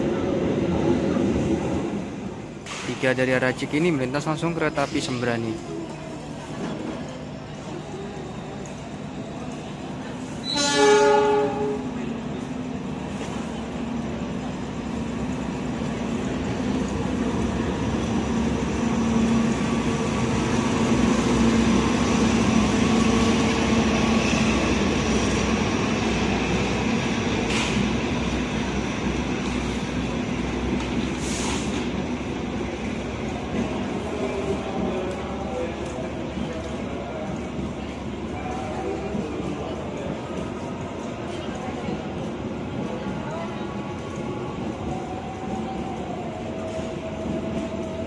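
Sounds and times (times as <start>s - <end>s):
locomotive horn blast: 10.4s - 11.9s.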